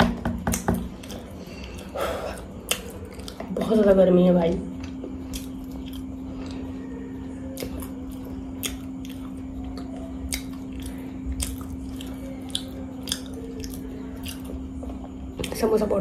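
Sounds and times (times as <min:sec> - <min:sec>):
chewing and mouth smacking: 0:00.5 - 0:03.6, 0:04.7 - 0:06.7, 0:07.4 - 0:15.7
low hum: 0:00.9 - 0:16.0.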